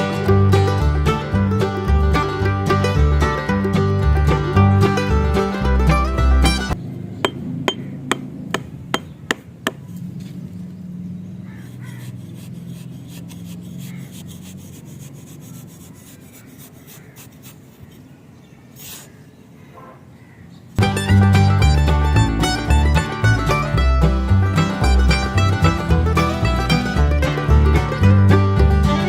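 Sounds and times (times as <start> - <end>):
rubbing on wood: 11.5 - 18.1.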